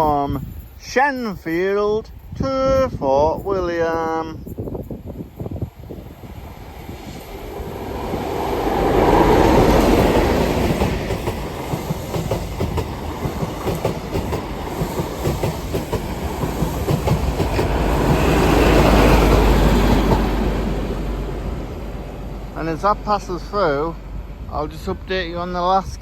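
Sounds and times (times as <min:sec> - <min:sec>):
train engine noise: 0:03.4 - 0:26.0
wheels clacking over rails: 0:07.3 - 0:21.8.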